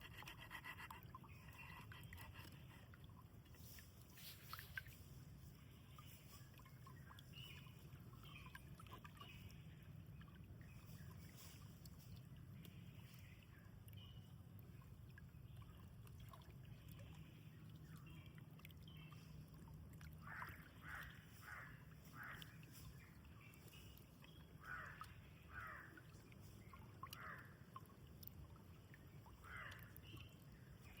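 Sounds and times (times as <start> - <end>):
low steady hum: 0.0 - 31.0
faint bird calls: 20.2 - 23.0, 24.3 - 27.6, 29.2 - 31.0.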